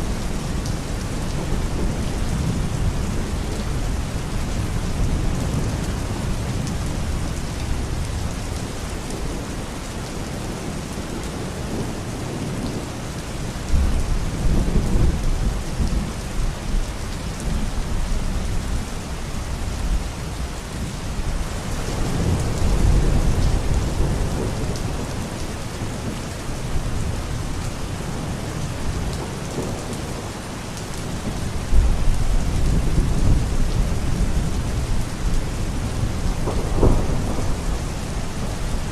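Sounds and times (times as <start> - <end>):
heavy rain: 0.0 - 38.9
rolling thunder: 31.2 - 38.9.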